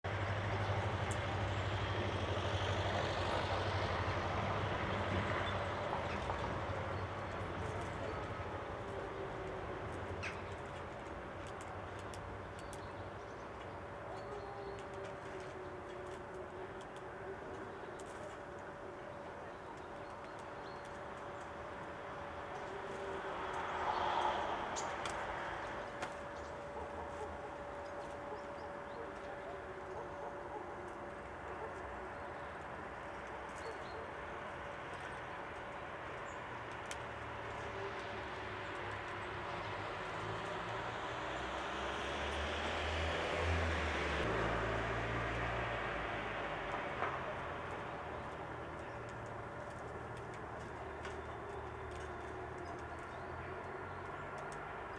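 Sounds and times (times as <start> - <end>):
faint bird calls: 13.6 - 20.9.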